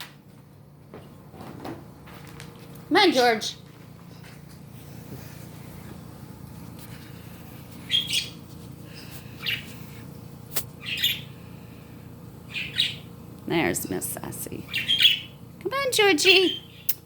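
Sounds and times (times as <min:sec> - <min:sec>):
bird chirping: 0:07.9 - 0:08.4, 0:09.4 - 0:09.7, 0:10.8 - 0:11.3, 0:12.5 - 0:13.1, 0:14.7 - 0:15.4.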